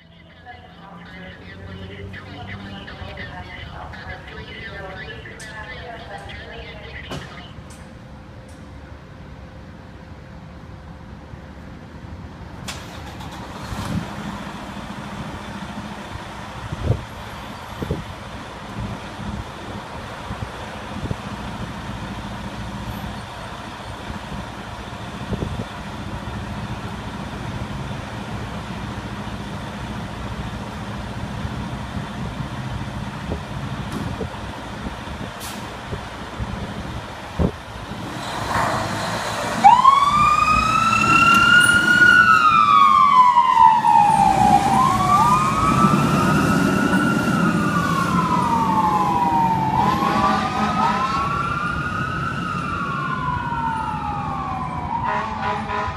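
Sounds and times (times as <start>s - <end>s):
fire engine siren wailing: 0.0s - 7.8s, 38.1s - 55.9s
traffic rumble: 0.0s - 55.9s
second siren tone: 39.7s - 51.8s, 53.2s - 55.9s.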